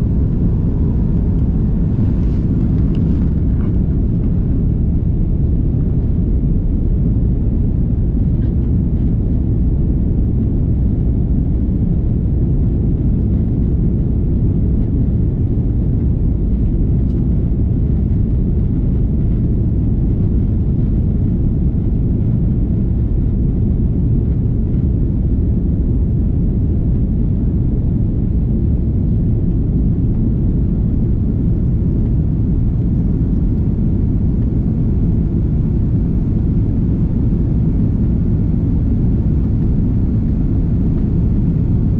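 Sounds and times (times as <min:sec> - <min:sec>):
airliner cabin engine rumble: 0:00.0 - 0:41.9.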